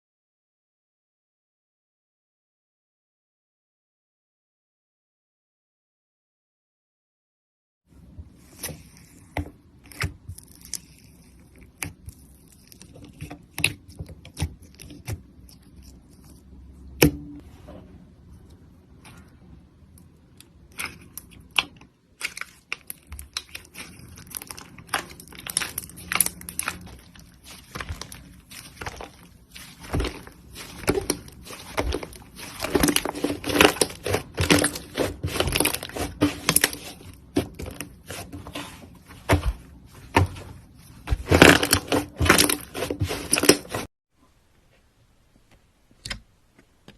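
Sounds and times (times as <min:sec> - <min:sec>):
slime crackling and popping: 0:20.7 - 0:37.7.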